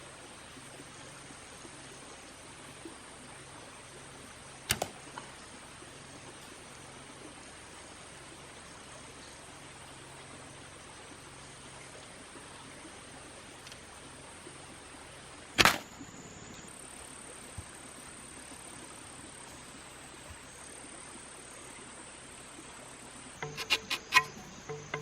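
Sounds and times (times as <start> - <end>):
insects buzzing: 3.8 - 6.9, 13.4 - 25.0
sharp loud snap: 4.7 - 5.2, 15.6 - 16.1
clicks with pitched rings: 23.4 - 25.0.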